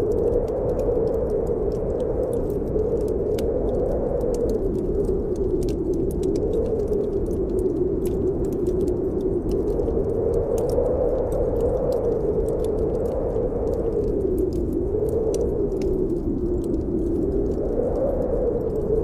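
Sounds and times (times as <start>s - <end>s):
fire crackling and popping: 0.0s - 19.0s
wind howling: 0.0s - 19.0s.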